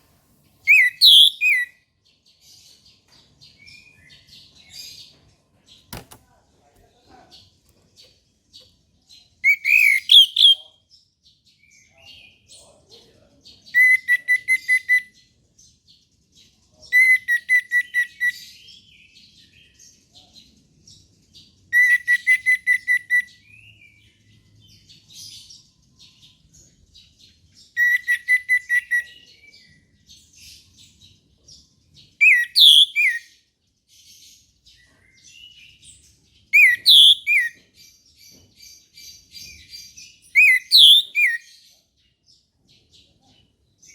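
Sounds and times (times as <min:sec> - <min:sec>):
soft bird twittering: 0:00.0 - 0:06.8, 0:07.7 - 0:10.8, 0:16.4 - 0:43.9
thrush whistled song: 0:00.7 - 0:01.7, 0:09.5 - 0:10.6, 0:32.2 - 0:33.2, 0:36.6 - 0:37.5.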